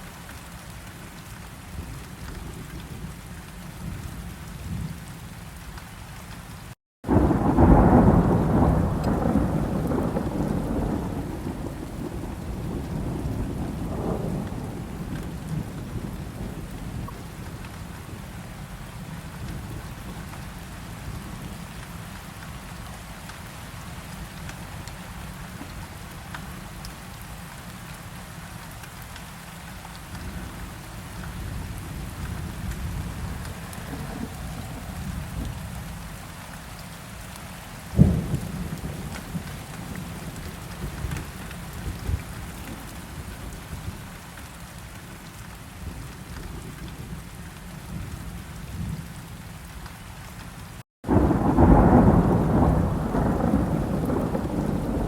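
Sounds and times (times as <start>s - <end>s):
heavy rain: 0.0s - 55.0s
loud thunderclap: 7.1s - 17.0s, 38.0s - 39.4s, 51.0s - 55.0s
low rolling thunder: 7.1s - 18.2s, 30.2s - 36.0s, 38.0s - 44.0s, 51.0s - 55.0s.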